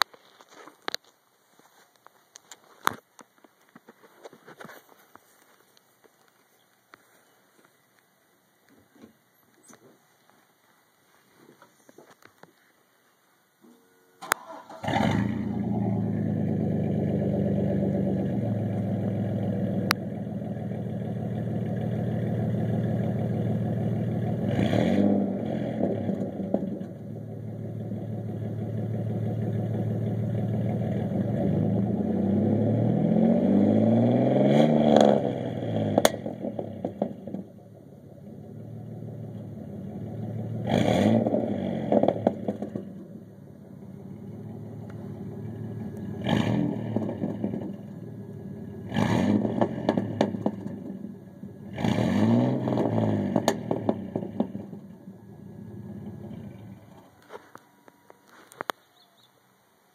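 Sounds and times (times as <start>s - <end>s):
truck engine idling and revving: 14.3s - 58.6s.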